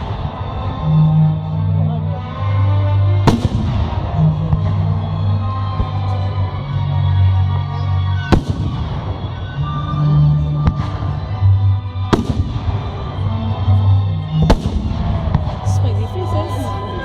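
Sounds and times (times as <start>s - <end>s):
music with sustained low notes: 0.0s - 17.0s
firework bangs with crackling echo: 3.2s - 6.2s, 8.2s - 11.4s, 12.0s - 13.4s, 14.3s - 15.8s.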